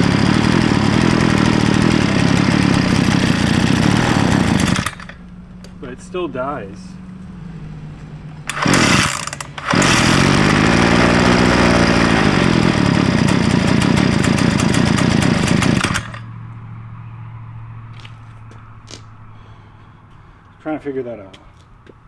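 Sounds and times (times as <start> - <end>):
small two-stroke engine revving: 0.0 - 5.2, 8.4 - 16.3.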